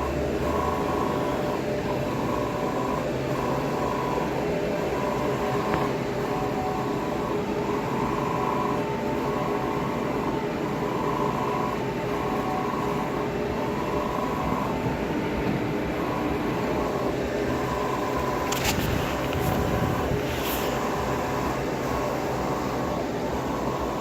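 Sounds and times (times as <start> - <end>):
high whine: 12.4 - 24.0
machine humming and rushing: 13.9 - 24.0.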